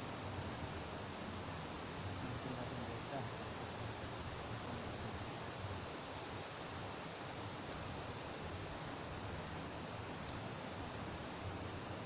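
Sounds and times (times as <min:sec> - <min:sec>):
even hiss: 0:00.0 - 0:12.0.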